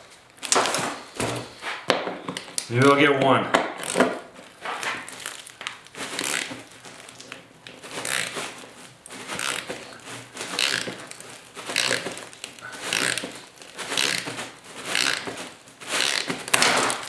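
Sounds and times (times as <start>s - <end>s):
hand tool scraping and grinding: 3.7s - 17.0s.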